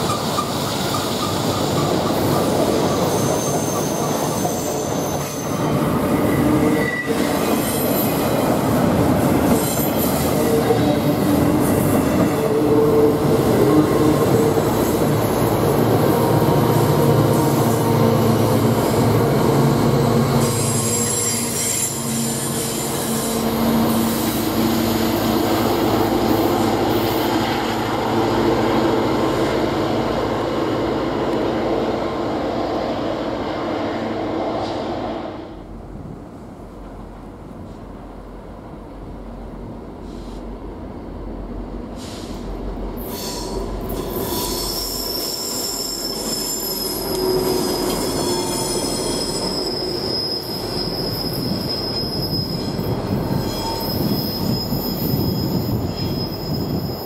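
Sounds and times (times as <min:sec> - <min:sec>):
train wheels squealing on rails: 0:00.0 - 0:28.1, 0:40.0 - 0:40.5, 0:41.9 - 0:57.0
passing train rumble: 0:00.0 - 0:57.0.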